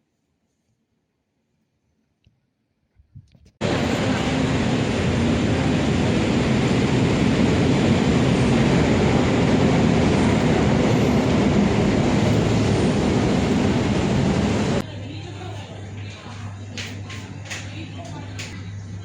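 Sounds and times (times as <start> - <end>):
vehicle rumbling in motion: 3.6 - 14.8.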